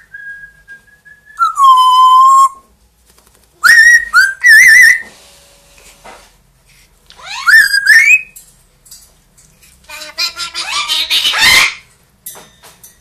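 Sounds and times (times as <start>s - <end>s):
parrot whistling: 0.2s - 2.6s, 3.6s - 5.0s, 7.2s - 8.4s, 9.9s - 11.9s.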